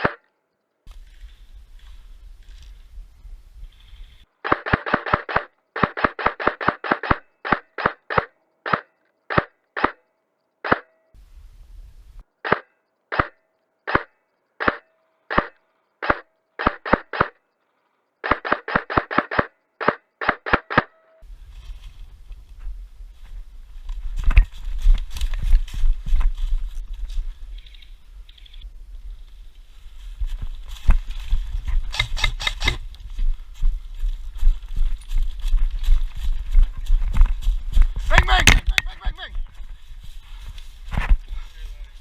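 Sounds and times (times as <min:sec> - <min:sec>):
airsoft gun firing: 0:04.4 - 0:10.0, 0:13.2 - 0:17.3, 0:18.2 - 0:20.9, 0:31.9 - 0:32.8.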